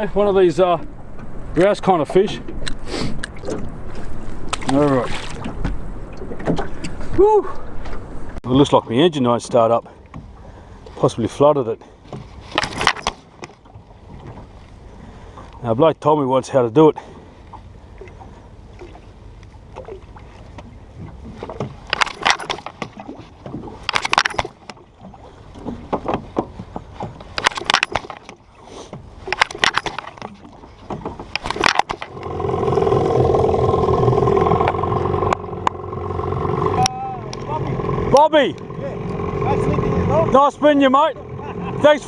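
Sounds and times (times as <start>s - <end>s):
outboard motor cranking and running: 21.1s - 42.0s.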